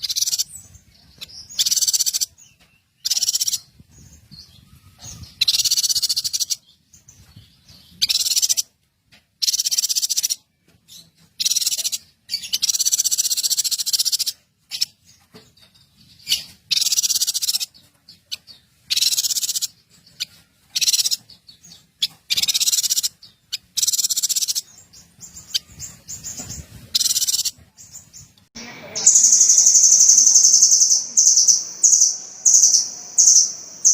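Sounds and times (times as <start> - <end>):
songbird trilling: 0.0 - 2.4, 3.0 - 3.7, 4.6 - 6.6, 8.0 - 8.6, 11.4 - 14.9, 16.3 - 17.8, 18.4 - 21.4, 22.0 - 27.6, 28.6 - 33.9.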